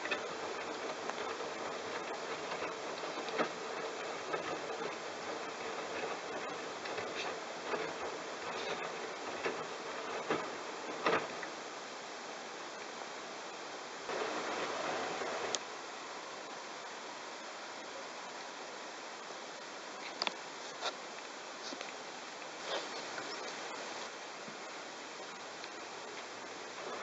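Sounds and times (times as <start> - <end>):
washing machine drum water swishing: 0.0 - 11.8.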